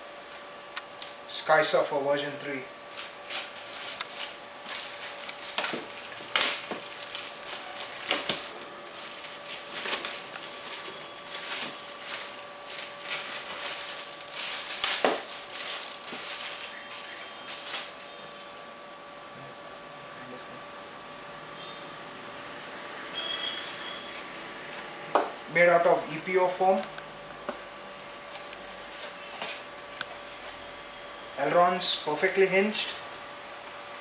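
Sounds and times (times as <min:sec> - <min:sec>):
faint steady hum: 0:00.0 - 0:34.0
foam and packaging rustling: 0:02.8 - 0:18.4, 0:27.9 - 0:30.8.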